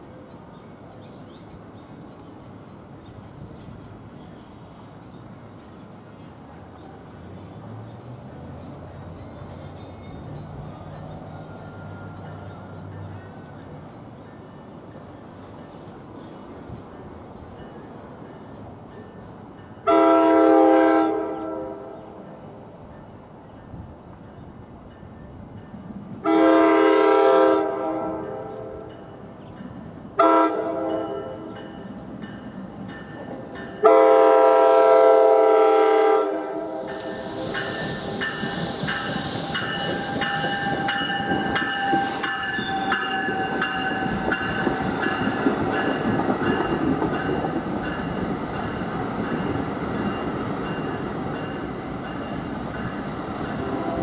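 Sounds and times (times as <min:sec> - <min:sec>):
train rolling past: 0:00.0 - 0:54.0
train air horn blasts: 0:19.8 - 0:22.0, 0:26.2 - 0:28.8, 0:30.2 - 0:31.5, 0:33.8 - 0:43.8, 0:53.5 - 0:54.0
high whine: 0:36.7 - 0:43.6.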